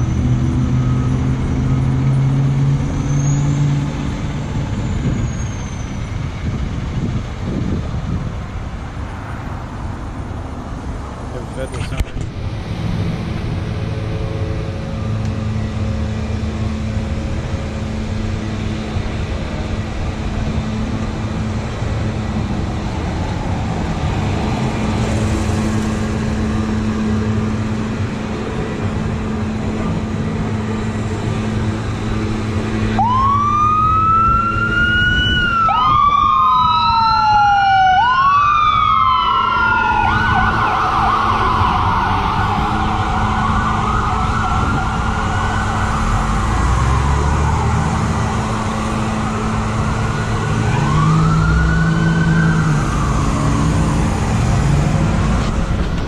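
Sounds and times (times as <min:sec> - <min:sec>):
road and engine noise: 0:00.0 - 0:56.0
ambulance siren wailing: 0:22.1 - 0:55.8.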